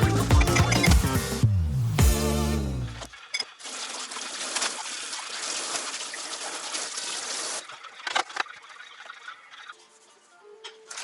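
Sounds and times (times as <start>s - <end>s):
liquid pouring in a trickle: 3.1s - 9.7s.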